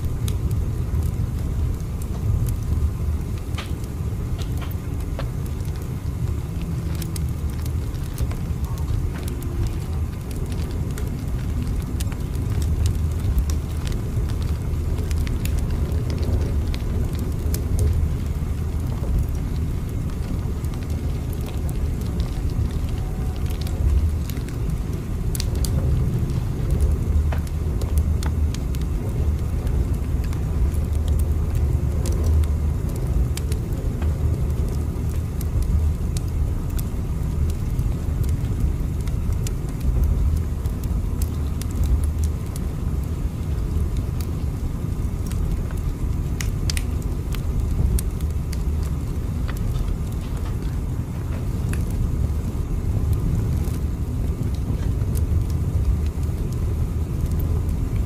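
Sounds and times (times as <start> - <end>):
faint clicks and crackles: 0.0 - 58.0
train rumbling: 20.0 - 28.3.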